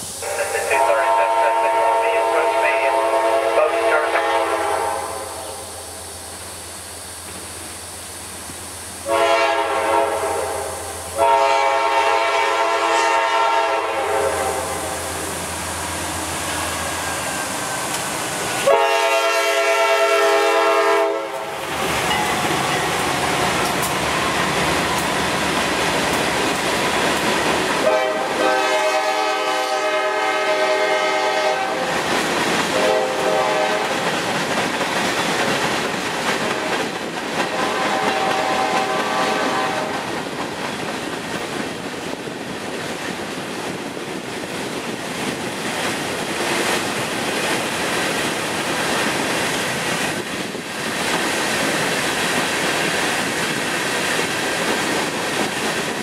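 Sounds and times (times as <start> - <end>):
freight train wheels rumbling on rail: 0.0 - 56.0
locomotive horn blasts: 0.2 - 5.6, 9.0 - 15.0, 18.6 - 21.5, 27.8 - 31.9, 32.7 - 34.1, 37.5 - 40.0.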